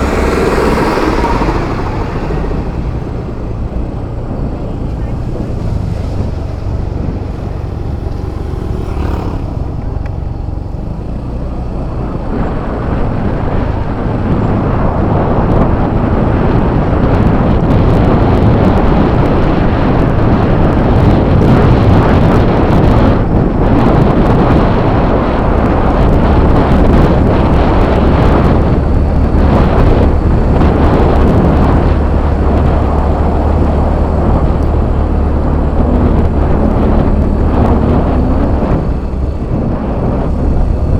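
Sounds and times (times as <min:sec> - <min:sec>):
scooter engine running: 0:00.0 - 0:40.9
wind rush on microphone: 0:00.0 - 0:40.9.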